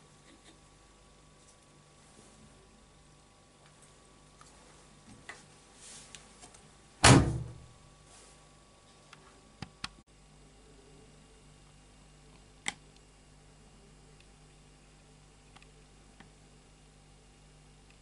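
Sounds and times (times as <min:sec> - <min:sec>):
washing machine door thud: 0:07.0 - 0:07.7.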